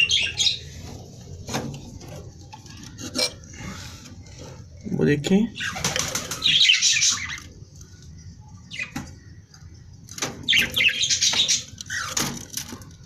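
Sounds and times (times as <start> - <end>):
small parrots chattering and squawking: 0.0 - 0.7, 5.6 - 7.6, 10.5 - 12.5.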